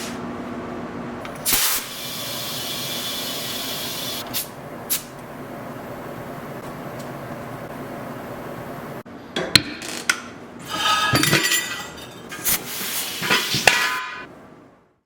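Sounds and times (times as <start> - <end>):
metal clanks and clinks: 10.6 - 12.5.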